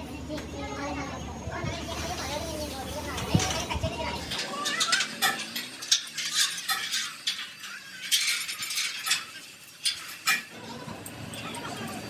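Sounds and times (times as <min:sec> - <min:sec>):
metal tools clinking: 0:03.1 - 0:12.0.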